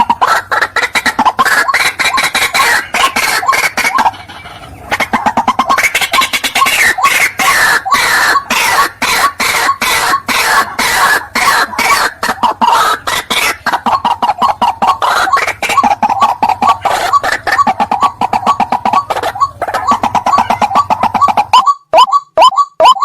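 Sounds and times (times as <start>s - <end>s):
bird harsh croaking: 0.0s - 23.0s.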